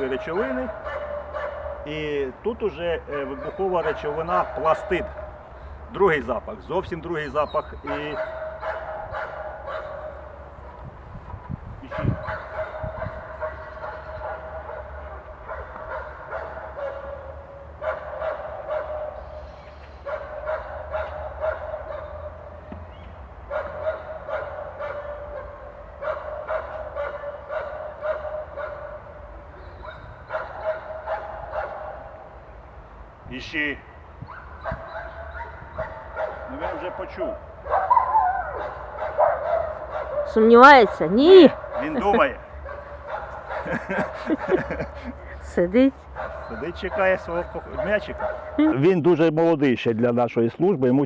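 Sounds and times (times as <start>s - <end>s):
dogs barking and yelping: 0.0s - 1.9s, 3.1s - 5.5s, 7.3s - 11.0s, 11.8s - 32.4s, 34.2s - 48.9s.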